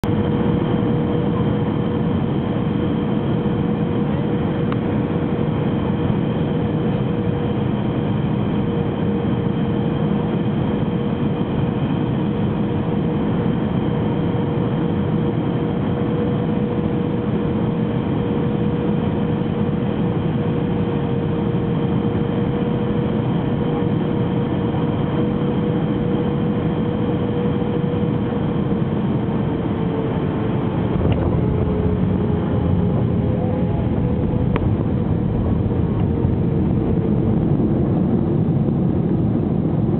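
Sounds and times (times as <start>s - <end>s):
constant humming tone: 0.0s - 39.9s
jet engine and air rush: 25.2s - 39.9s.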